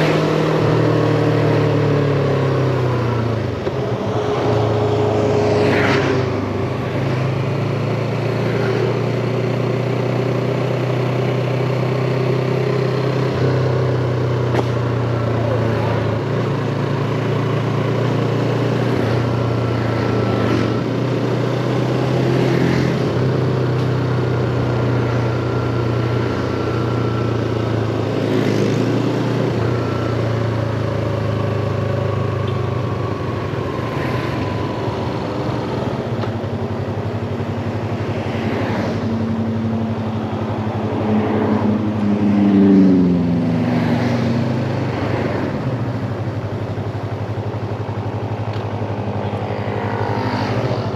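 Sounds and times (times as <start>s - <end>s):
motorcycle engine cruising: 0.0s - 50.9s
wind and road noise: 0.0s - 50.9s.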